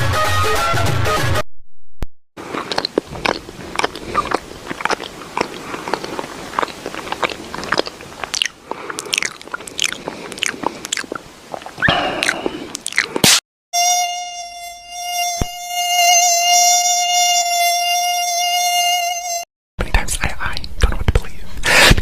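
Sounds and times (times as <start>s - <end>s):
chewing and crunching food: 2.4s - 13.3s
mouth clicks: 2.4s - 13.4s.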